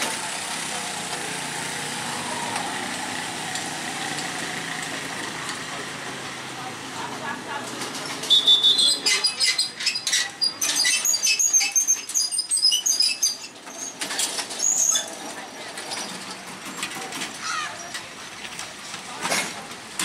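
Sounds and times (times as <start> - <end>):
faint voices: 0.0 - 13.6, 14.8 - 19.8
street ambience: 0.0 - 20.0.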